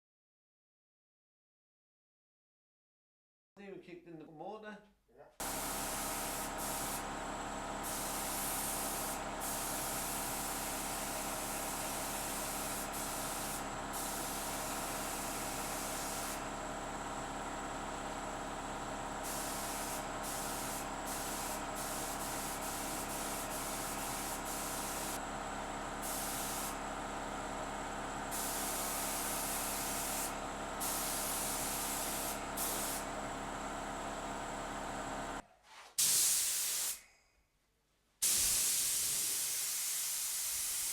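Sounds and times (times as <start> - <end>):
spray gun hissing: 5.4 - 25.3, 25.9 - 33.5, 36.0 - 37.0, 38.2 - 40.9
air compressor humming: 5.4 - 35.4.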